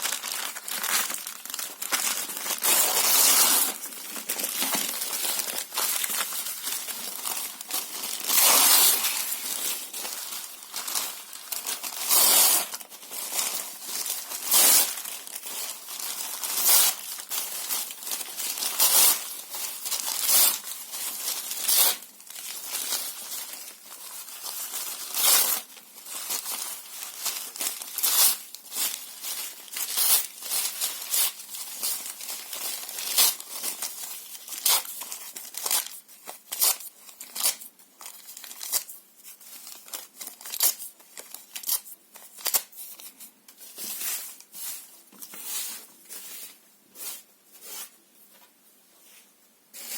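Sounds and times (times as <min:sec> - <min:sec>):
paper and cardboard tearing: 0:00.0 - 0:06.3, 0:07.2 - 0:10.2, 0:10.8 - 0:19.4.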